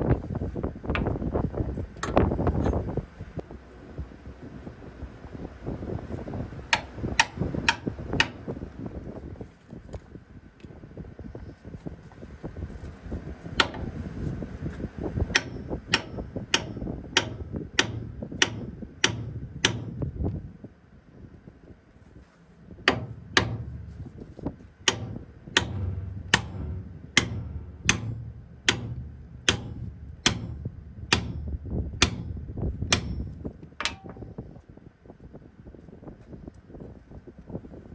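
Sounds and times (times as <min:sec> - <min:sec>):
low rumble: 0:12.6 - 0:34.5
hammer striking steel: 0:15.3 - 0:20.2, 0:22.9 - 0:34.3.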